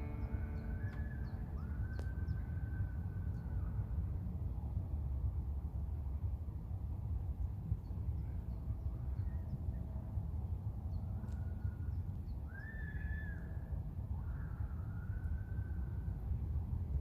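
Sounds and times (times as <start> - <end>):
bird calls: 0.0 - 3.7
steady low rumble: 0.0 - 12.5.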